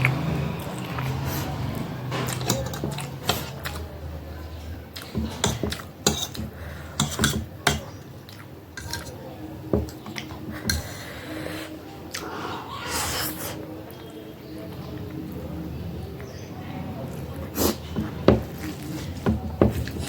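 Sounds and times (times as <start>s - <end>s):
utensil clinking against plate: 2.2s - 3.8s, 5.0s - 8.0s, 8.8s - 11.0s.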